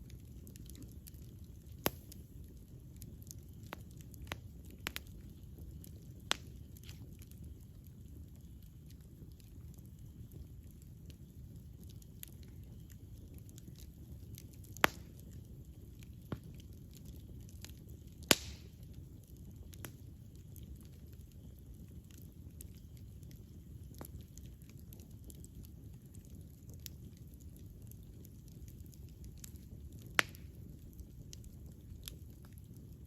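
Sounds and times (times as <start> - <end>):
wood fire crackling: 0.0 - 33.0
fire popping sharply: 0.4 - 7.6, 12.3 - 16.5, 17.6 - 18.9, 29.0 - 31.2.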